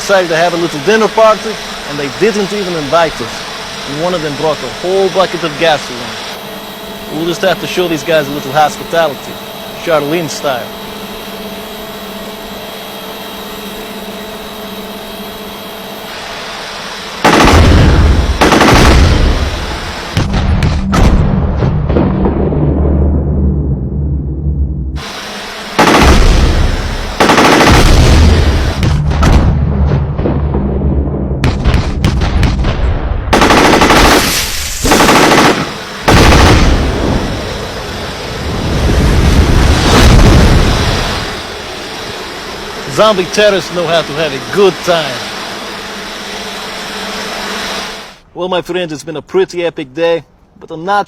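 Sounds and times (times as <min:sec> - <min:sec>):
drone rotor hum: 0:00.0 - 0:48.3
automatic gunfire: 0:17.2 - 0:19.6, 0:25.8 - 0:28.8, 0:33.3 - 0:37.0
machine gun bursts: 0:17.2 - 0:19.9, 0:25.8 - 0:28.8, 0:33.3 - 0:37.0.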